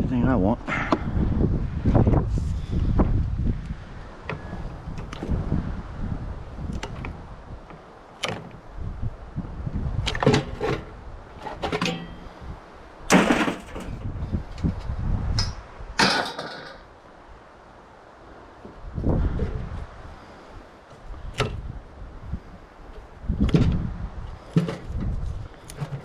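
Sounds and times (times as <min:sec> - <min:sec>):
wind rumble on microphone: 0:00.0 - 0:17.5, 0:18.2 - 0:26.0
metal parts clanking and scraping: 0:10.3 - 0:12.3, 0:13.1 - 0:14.1, 0:16.0 - 0:16.9.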